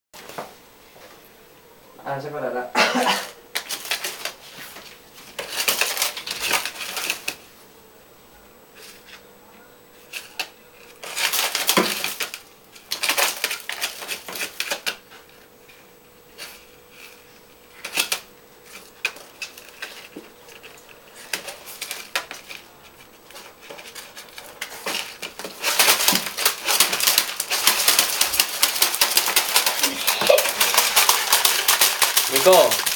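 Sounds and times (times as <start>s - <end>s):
pet digging in cat litter: 16.3s - 32.9s.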